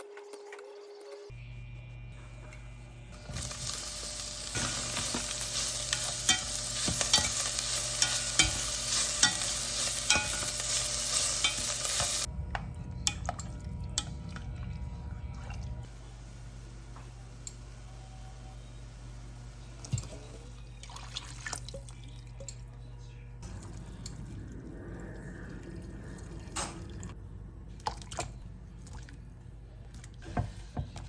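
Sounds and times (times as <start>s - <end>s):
food sizzling in a pan: 3.2s - 12.3s
low hum: 22.8s - 30.2s.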